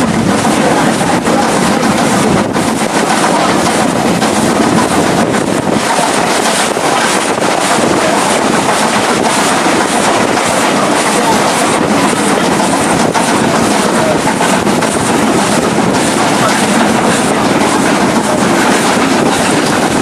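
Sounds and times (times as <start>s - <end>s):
train wheels clicking on rails: 0.0s - 20.0s
wind rushing over microphone: 0.0s - 20.0s.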